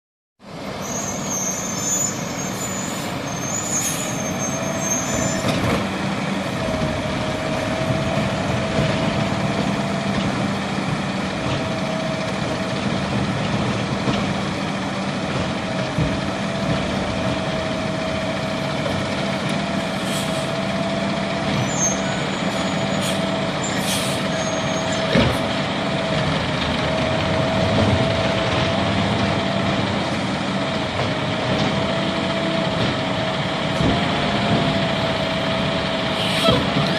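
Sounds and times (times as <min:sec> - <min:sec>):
diesel engine running: 0:00.4 - 0:36.9
high squeals and hisses: 0:00.8 - 0:05.4, 0:36.1 - 0:36.9.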